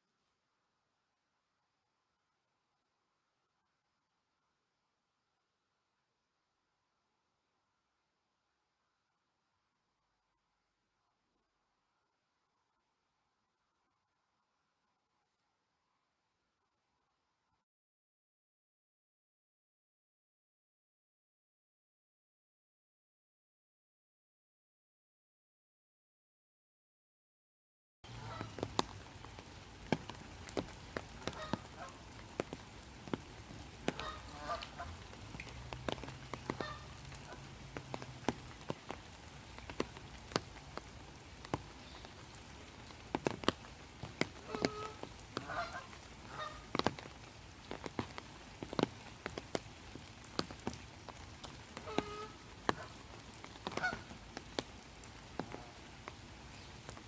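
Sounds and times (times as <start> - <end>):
rain drops pattering: 28.0 - 57.0
geese honking: 28.2 - 28.6, 31.2 - 32.1, 33.8 - 35.1, 36.4 - 37.5, 44.4 - 46.7, 51.8 - 53.0, 53.8 - 54.1.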